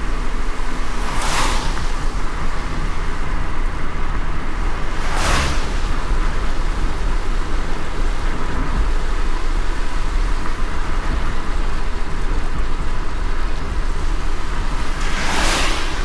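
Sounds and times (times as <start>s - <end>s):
whoosh: 0.0s - 3.7s, 4.5s - 7.8s, 14.4s - 16.0s
car on wet road: 0.0s - 16.0s.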